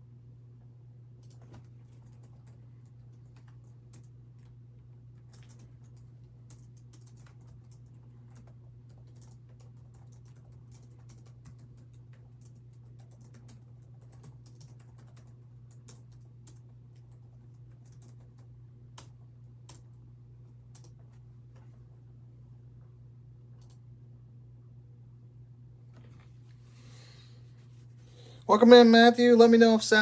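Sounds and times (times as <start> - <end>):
low electrical hum: 0.0 - 30.0
keyboard typing clicks: 1.2 - 4.5, 5.2 - 20.0, 20.7 - 21.2, 23.6 - 23.8.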